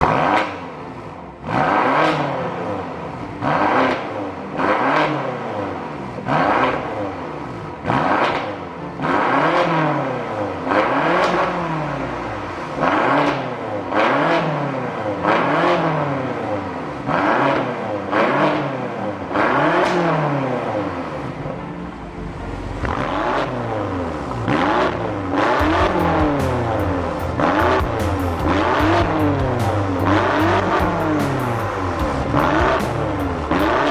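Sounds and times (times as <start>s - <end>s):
car engine revving: 17.1s - 33.9s
exhaust crackles: 21.5s - 33.9s.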